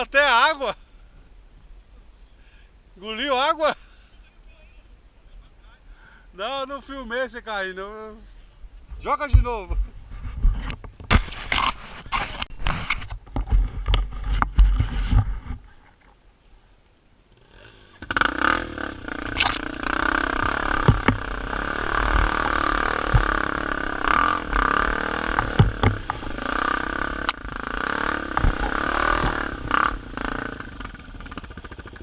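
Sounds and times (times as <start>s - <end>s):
knocks and scrapes: 8.9s - 16.2s, 19.2s - 30.0s
dirt bike engine running: 17.4s - 32.0s.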